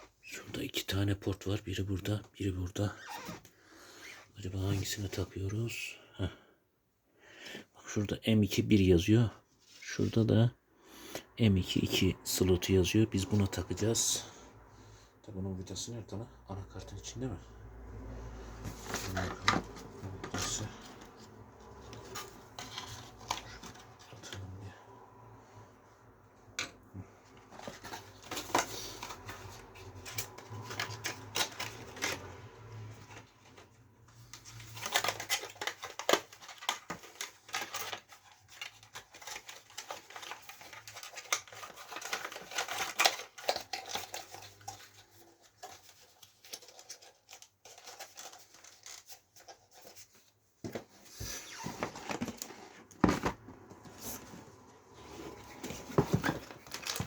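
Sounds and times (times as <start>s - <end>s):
clicks and rustles of handling parts: 18.5s - 24.6s, 26.2s - 57.0s.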